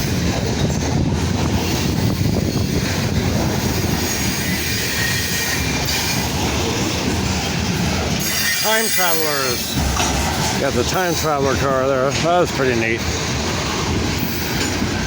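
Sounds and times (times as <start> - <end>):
freight train wheels rumbling on rails: 0.0 - 15.0
faint wheel squeal: 4.0 - 6.3.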